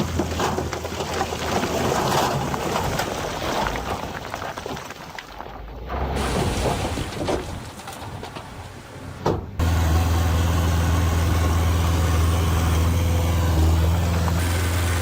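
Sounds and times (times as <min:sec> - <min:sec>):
diesel engine humming: 0:09.5 - 0:15.0.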